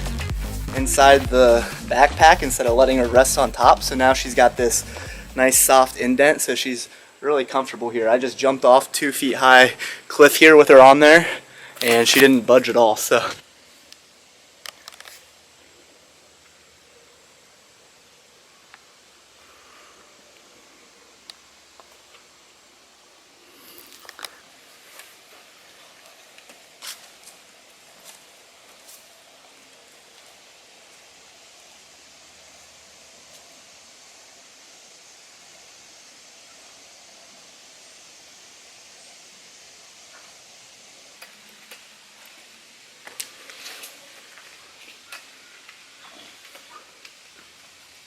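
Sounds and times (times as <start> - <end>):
outdoor hiss: 0.0 - 48.0
footsteps crunching on trail: 4.6 - 5.4, 23.8 - 31.1.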